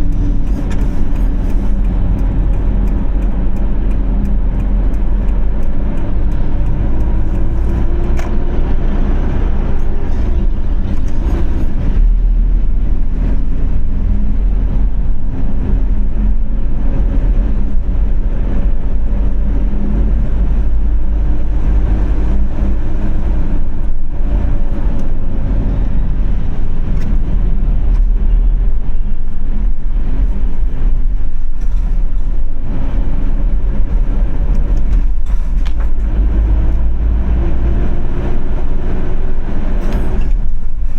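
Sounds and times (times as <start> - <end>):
car engine and road noise rumble: 0.0 - 40.9.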